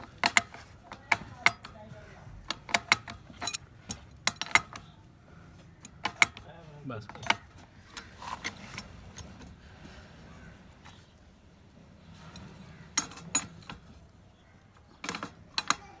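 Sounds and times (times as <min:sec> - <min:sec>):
metal fittings and tools clinking: 0:00.0 - 0:01.8, 0:02.4 - 0:04.9, 0:05.6 - 0:09.6, 0:12.1 - 0:14.1.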